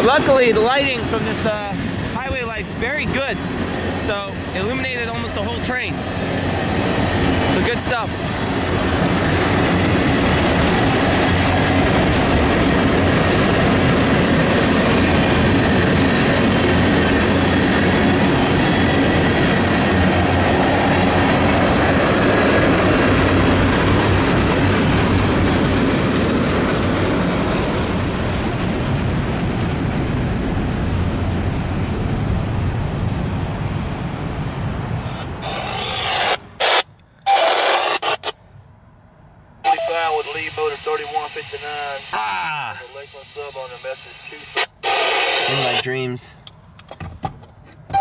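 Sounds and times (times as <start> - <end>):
train wheels rumbling on rail: 0.0 - 36.4.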